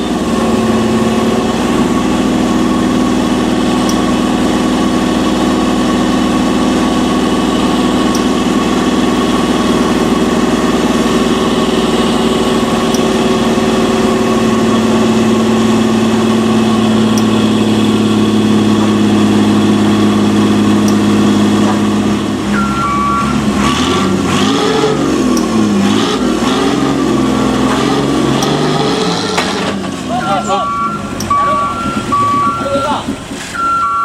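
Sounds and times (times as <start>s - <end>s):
truck diesel engine: 0.0s - 34.0s
two-tone reversing alarm beeping: 22.5s - 28.8s, 30.1s - 34.0s.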